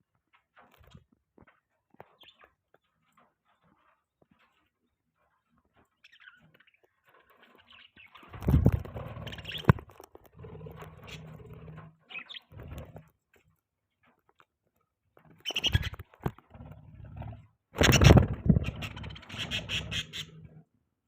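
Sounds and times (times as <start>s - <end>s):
rustling and scraping: 0.0s - 20.7s
budgies chirping: 2.1s - 2.5s, 6.0s - 9.9s, 10.7s - 11.4s, 12.1s - 12.8s, 15.3s - 16.0s, 17.8s - 20.6s.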